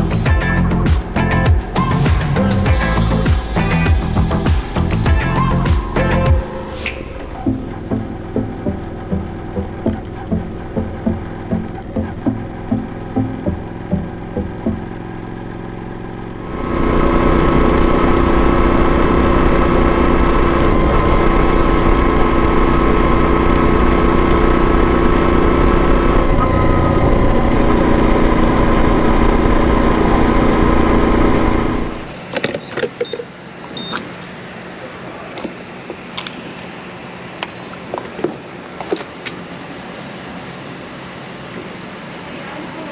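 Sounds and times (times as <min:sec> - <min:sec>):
motorcycle engine running: 0:00.0 - 0:06.6, 0:07.2 - 0:32.2.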